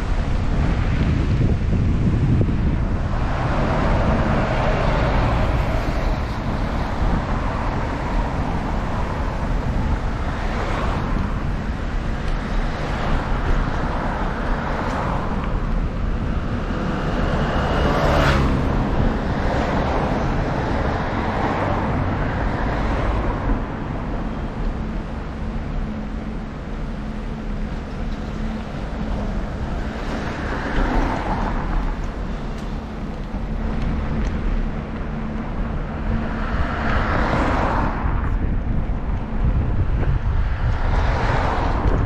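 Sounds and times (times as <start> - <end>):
cars passing: 0.0 - 42.0
wind rushing over microphone: 0.0 - 42.0.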